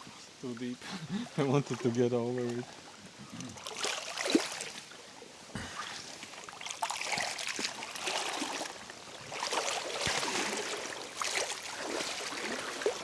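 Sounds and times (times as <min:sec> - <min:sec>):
water sloshing around wading legs: 0:03.6 - 0:04.9, 0:05.8 - 0:13.0.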